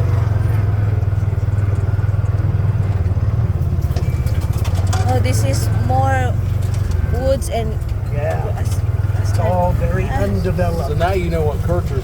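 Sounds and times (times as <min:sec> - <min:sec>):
atv engine droning: 0:00.0 - 0:12.0
light clicks and rattles: 0:03.8 - 0:05.7, 0:06.5 - 0:08.9.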